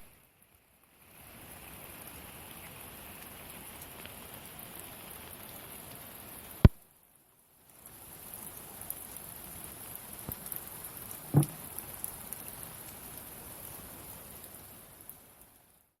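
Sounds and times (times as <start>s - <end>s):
rain pattering: 0.0s - 16.0s
loud knock: 11.4s - 11.6s.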